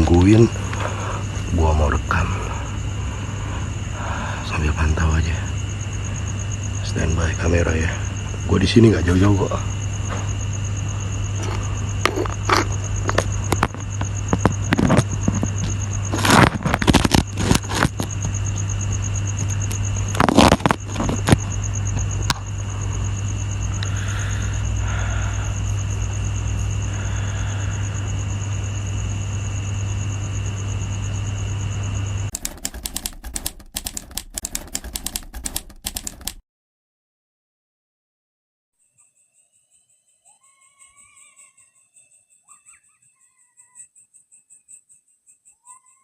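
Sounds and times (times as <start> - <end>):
high steady whine: 0.0 - 36.3
low electrical hum: 0.0 - 36.3
fast irregular clicks: 32.3 - 36.4
handling clicks and knocks: 32.3 - 36.4.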